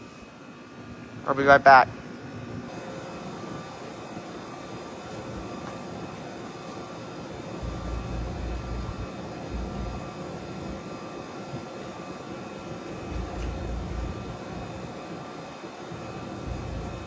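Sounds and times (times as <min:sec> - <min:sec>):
heat pump droning: 0:00.0 - 0:17.0
wind rumbling on microphone: 0:13.0 - 0:14.9.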